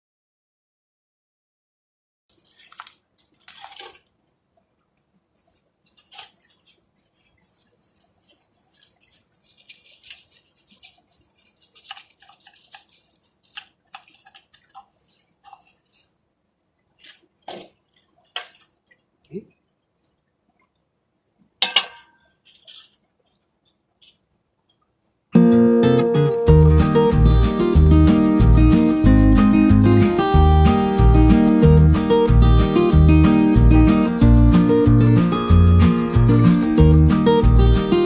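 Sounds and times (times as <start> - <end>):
brush scrubbing: 5.4 - 16.3.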